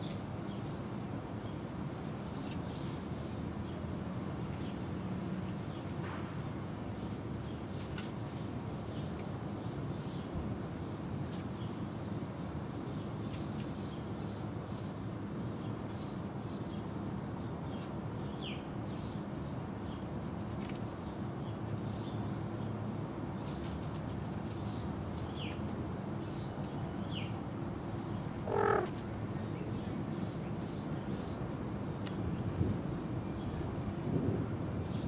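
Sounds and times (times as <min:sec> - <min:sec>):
small birds chirping: 0:28.0 - 0:31.4
short pitched animal call: 0:28.4 - 0:29.0.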